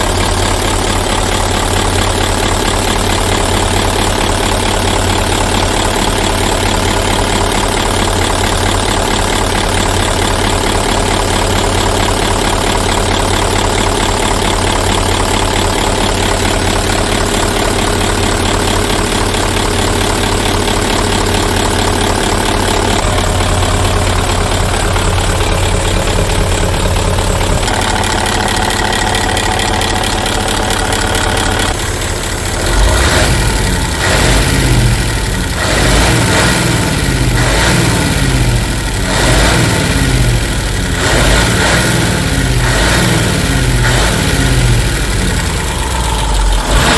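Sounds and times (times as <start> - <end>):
diesel truck engine idling: 0.0 - 46.9
engine revving: 20.7 - 46.9.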